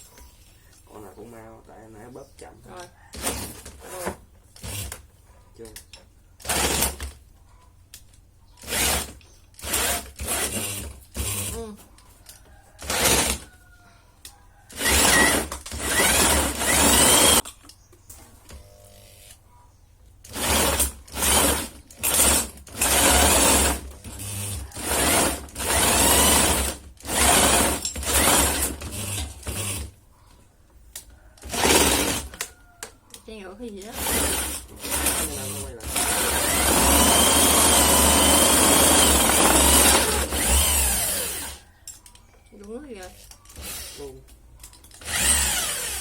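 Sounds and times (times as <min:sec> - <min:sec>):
electric drill bursts: 0:08.6 - 0:11.6, 0:12.8 - 0:13.4, 0:14.7 - 0:17.4, 0:20.3 - 0:29.9, 0:31.4 - 0:32.3, 0:33.9 - 0:41.6, 0:43.6 - 0:44.1, 0:45.0 - 0:46.0.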